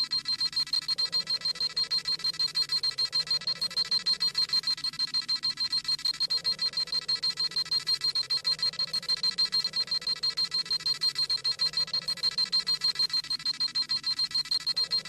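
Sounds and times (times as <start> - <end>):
rapid electronic beeping: 0.0 - 15.0.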